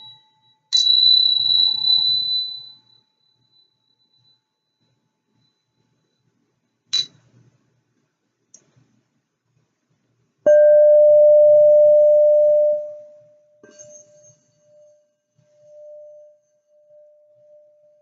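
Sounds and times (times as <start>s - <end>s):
short high ding: 10.5s - 13.0s
singing bowl ringing: 10.5s - 18.0s.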